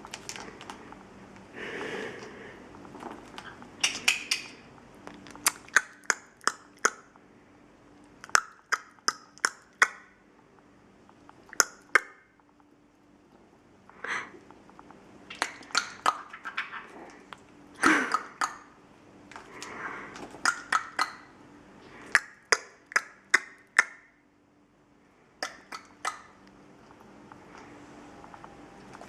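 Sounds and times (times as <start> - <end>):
parrot beak clicks: 3.4 - 4.6.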